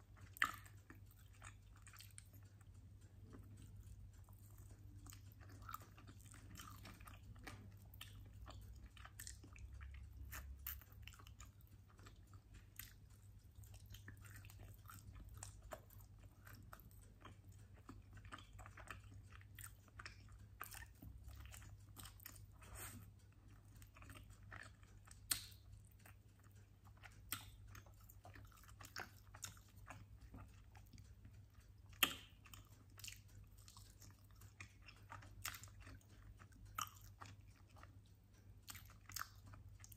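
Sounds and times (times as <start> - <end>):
chewing and biting: 0.0 - 39.9
wet mouth clicks: 19.7 - 31.0, 31.9 - 38.0.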